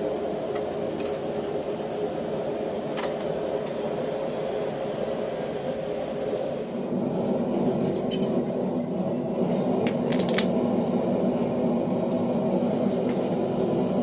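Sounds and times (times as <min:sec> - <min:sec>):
metallic clinks of steel tools: 0:09.9 - 0:10.5.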